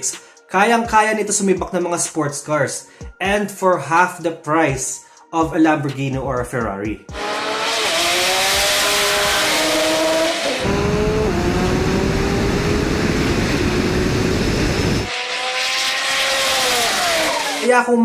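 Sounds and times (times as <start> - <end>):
sports car engine accelerating: 7.1 - 17.7
heavy low rumble: 10.6 - 15.1.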